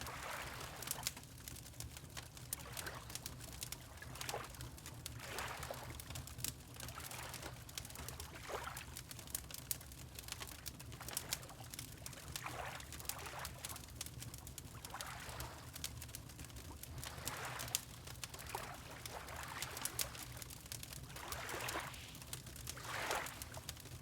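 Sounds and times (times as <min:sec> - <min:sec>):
wood fire crackling and popping: 0:00.7 - 0:05.2, 0:08.9 - 0:15.0, 0:15.7 - 0:24.0
water lapping: 0:17.0 - 0:20.3, 0:21.1 - 0:23.8.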